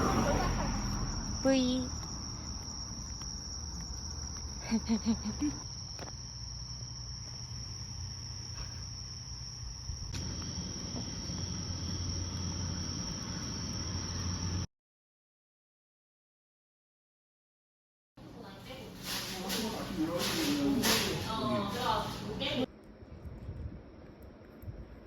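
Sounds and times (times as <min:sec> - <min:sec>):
insects chirring: 0:00.0 - 0:14.7, 0:18.4 - 0:22.7.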